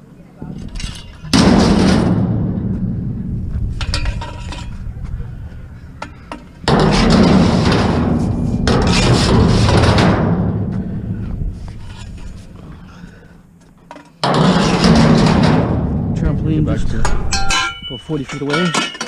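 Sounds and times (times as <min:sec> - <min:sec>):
scrap metal crashing and rattling: 0:06.6 - 0:10.8, 0:14.2 - 0:16.2, 0:17.1 - 0:19.0.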